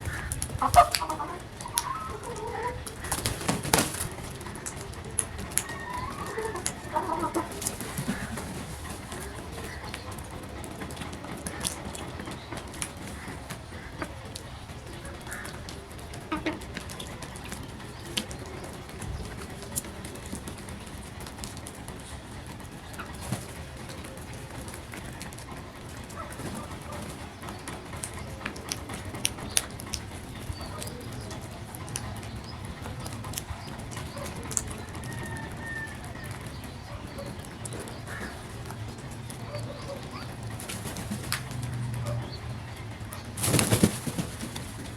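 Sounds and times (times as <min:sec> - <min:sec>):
crows calling harshly: 0:00.0 - 0:03.2, 0:15.2 - 0:15.6
birds making soft sounds: 0:00.0 - 0:44.9
low background noise: 0:00.0 - 0:44.9.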